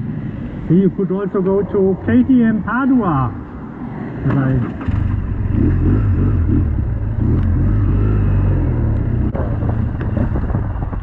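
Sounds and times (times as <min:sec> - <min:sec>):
motorcycle engine rumbling: 0:04.2 - 0:11.0.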